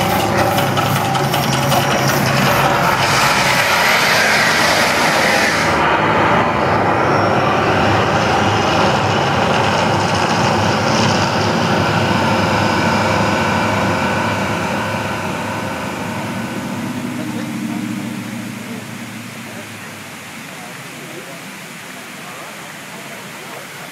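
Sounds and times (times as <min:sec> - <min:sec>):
hissing: 0:00.0 - 0:08.8
volcano effect rumbling roar: 0:00.0 - 0:23.8.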